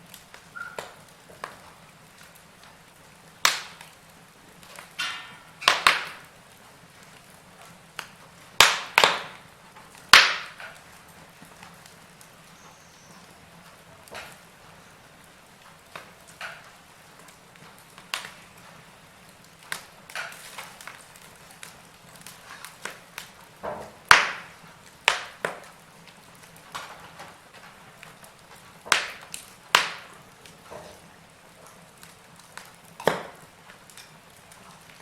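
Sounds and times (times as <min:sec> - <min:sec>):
faint steady hiss: 0:00.0 - 0:35.0
wood fire crackling and popping: 0:00.0 - 0:35.0.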